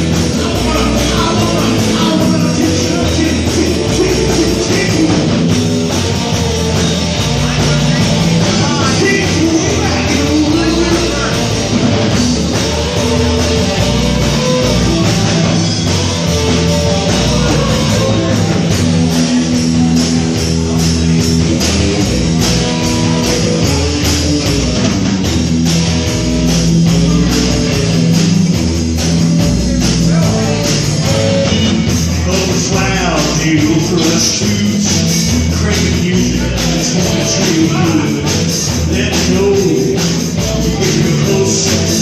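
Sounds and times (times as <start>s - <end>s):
rock music with guitar and drums: 0.0s - 42.0s.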